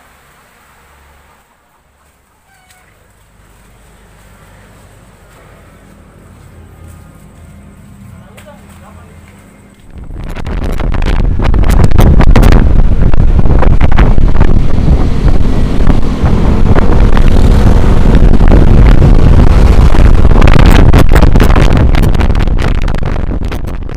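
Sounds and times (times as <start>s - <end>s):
wind buffeting microphone: 9.8s - 23.9s
sea surf rushing: 9.9s - 21.8s.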